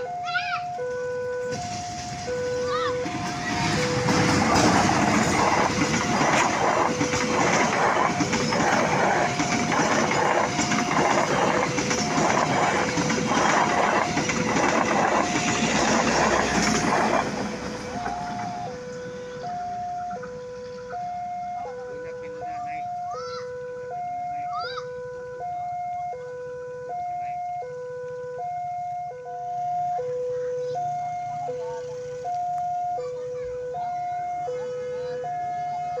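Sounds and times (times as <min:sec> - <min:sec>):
two-tone crossing alarm: 0:00.0 - 0:36.0
train wheels clattering: 0:02.9 - 0:18.7.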